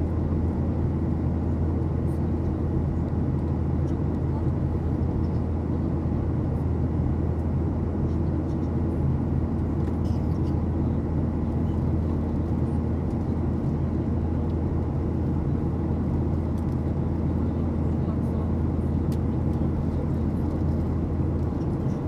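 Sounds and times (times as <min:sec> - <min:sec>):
airplane cabin drone: 0:00.0 - 0:22.0.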